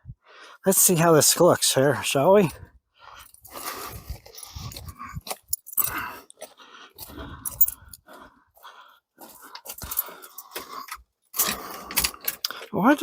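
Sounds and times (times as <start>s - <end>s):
hands handling parts clicking: 7.4s - 8.1s, 9.6s - 12.8s.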